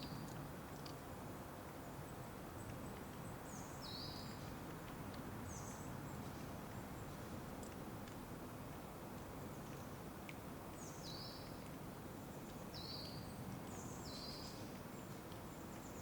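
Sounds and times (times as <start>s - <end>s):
low outdoor background noise: 0.0s - 16.0s
songbird calls: 12.4s - 16.0s.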